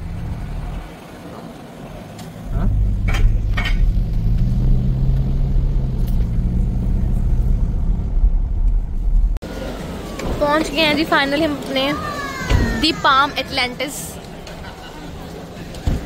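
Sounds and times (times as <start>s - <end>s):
car engine running: 0.0s - 9.4s.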